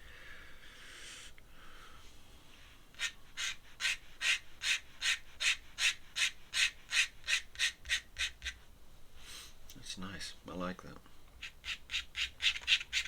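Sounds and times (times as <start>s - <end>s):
pen scratching on paper: 11.4s - 13.0s.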